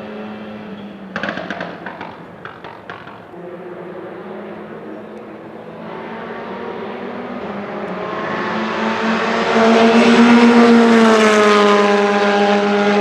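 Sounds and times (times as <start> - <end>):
rally car engine approaching: 0.0 - 13.0
sharp cracks: 1.1 - 3.4.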